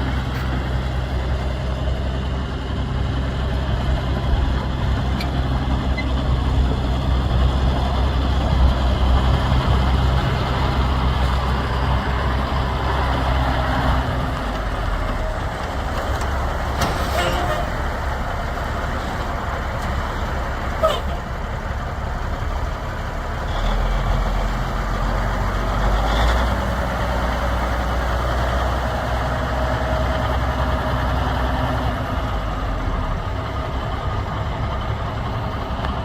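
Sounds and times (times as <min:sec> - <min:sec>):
diesel truck engine running: 0:00.0 - 0:36.0.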